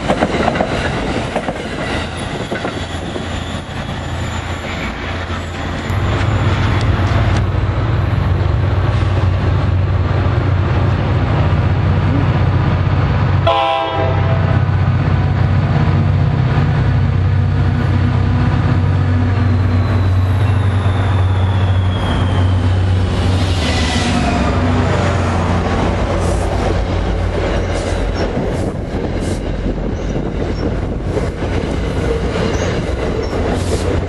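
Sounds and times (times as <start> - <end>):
diesel locomotive engine drone: 0.0 - 34.0
train horn toot: 13.4 - 14.7.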